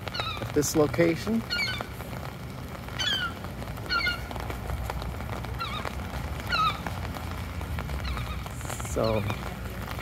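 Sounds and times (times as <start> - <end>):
bird high wavering calls: 0.0 - 0.7, 1.4 - 1.9, 2.9 - 4.4, 5.5 - 7.0, 8.0 - 9.4
low steady rumble: 0.0 - 10.0.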